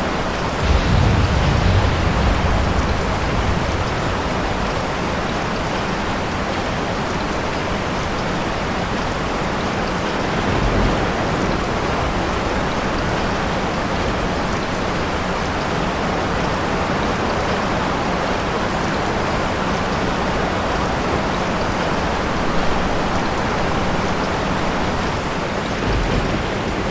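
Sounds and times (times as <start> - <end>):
heavy rain: 0.0 - 26.9
low rumble: 0.6 - 5.0.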